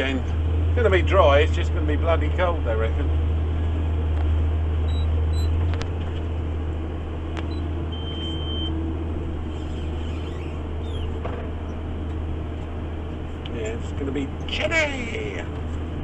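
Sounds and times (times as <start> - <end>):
tractor engine droning: 0.0 - 16.0
short high beep: 7.5 - 8.8.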